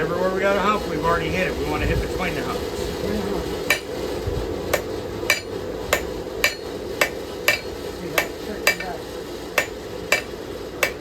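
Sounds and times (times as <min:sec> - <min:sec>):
steady low hum: 0:00.0 - 0:11.0
hammer striking steel on anvil: 0:03.7 - 0:04.0, 0:04.7 - 0:09.0, 0:09.6 - 0:11.0.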